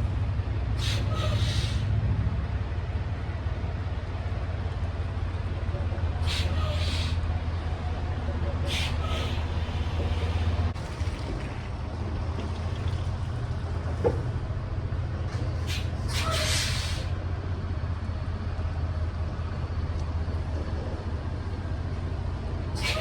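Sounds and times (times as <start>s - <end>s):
truck diesel engine idling: 0.0s - 23.0s
short air hisses: 0.8s - 1.9s, 6.3s - 7.2s, 8.7s - 10.5s, 15.6s - 17.1s, 22.8s - 23.0s.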